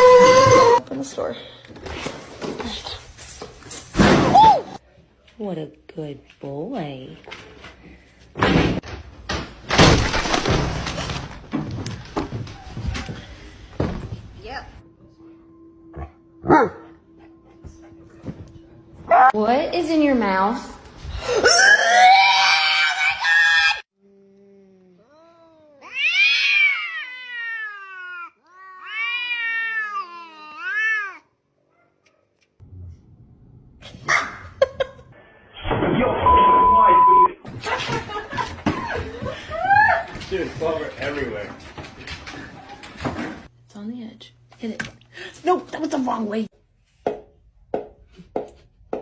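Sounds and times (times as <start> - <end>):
loud cry: 21.4 - 23.8
cat meowing: 24.8 - 31.3.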